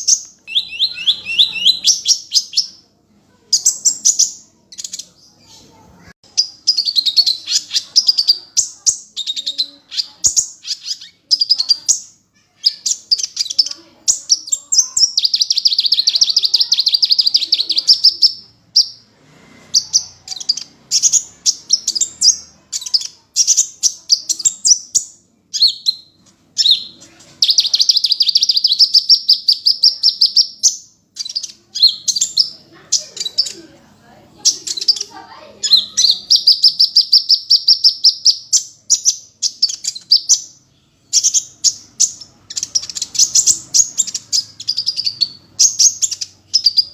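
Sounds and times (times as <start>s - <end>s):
sunbird singing with trills: 0.0s - 2.8s, 19.8s - 33.6s, 34.4s - 46.9s.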